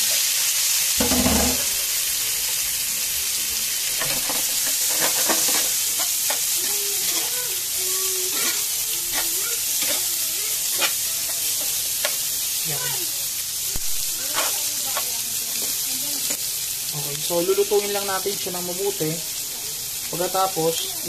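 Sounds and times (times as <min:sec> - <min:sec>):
onions sizzling in hot oil: 0:00.0 - 0:21.0
metal spoon scraping a pan: 0:03.9 - 0:07.4, 0:08.3 - 0:12.2, 0:14.3 - 0:16.5.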